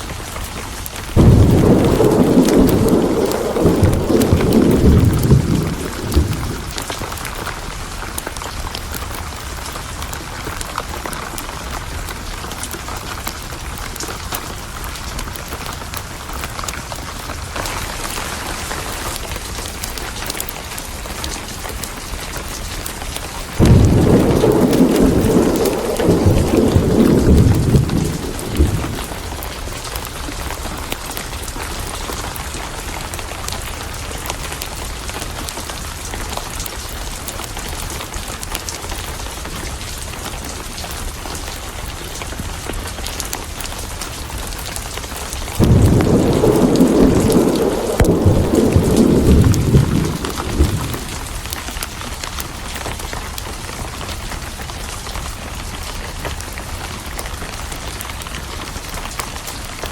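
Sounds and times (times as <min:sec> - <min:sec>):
steady rain: 0:00.0 - 0:59.9
thunder rumbling: 0:01.0 - 0:08.6, 0:23.4 - 0:30.9, 0:45.3 - 0:52.8
thunderclap: 0:01.1 - 0:07.4, 0:23.4 - 0:30.5, 0:45.5 - 0:52.0.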